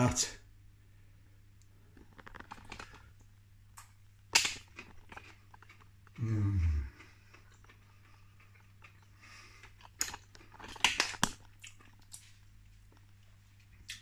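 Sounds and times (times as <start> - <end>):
person chewing crunchy food: 1.6 - 14.0
low voice hum: 6.2 - 7.2.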